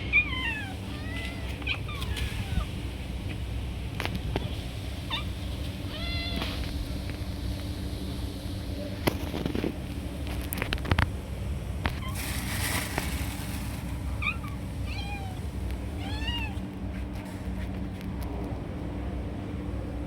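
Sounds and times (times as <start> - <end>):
cat meowing: 0.0 - 2.8, 5.1 - 6.6, 14.2 - 16.7
steady low hum: 0.0 - 20.0.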